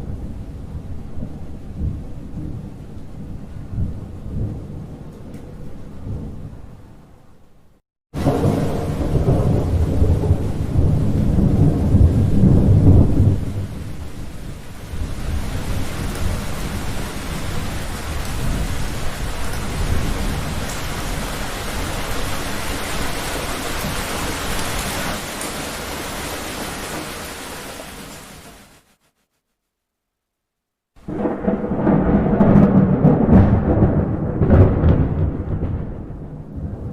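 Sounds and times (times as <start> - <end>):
thunder rumbling: 0.0 - 7.2, 8.2 - 27.9, 31.0 - 36.9
heavy rain: 8.2 - 29.0, 31.0 - 36.9.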